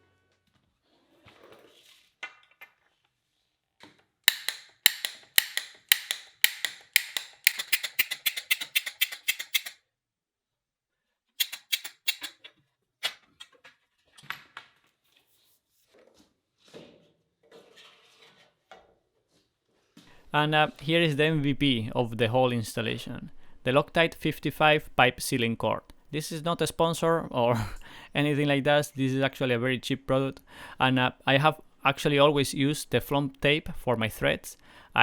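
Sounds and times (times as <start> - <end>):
sharp clicks: 4.3 - 9.8, 11.4 - 12.4.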